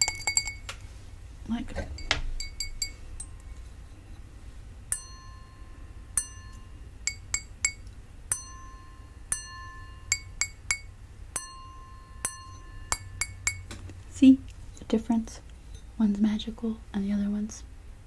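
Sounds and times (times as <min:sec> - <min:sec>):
crystal glass ringing: 0:00.0 - 0:00.7, 0:02.0 - 0:03.4, 0:04.9 - 0:13.7
dull glass clinks: 0:00.0 - 0:00.7, 0:01.8 - 0:03.4, 0:04.9 - 0:13.7.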